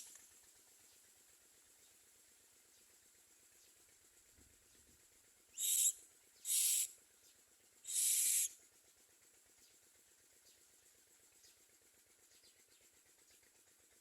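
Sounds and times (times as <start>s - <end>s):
bird harsh hissing calls: 5.5s - 6.9s, 7.8s - 8.6s.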